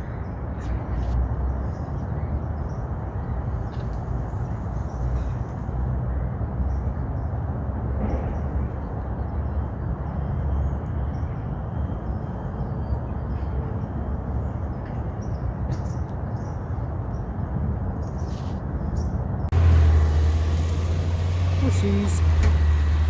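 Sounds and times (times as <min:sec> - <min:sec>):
low outdoor rumble: 0:18.7 - 0:23.0.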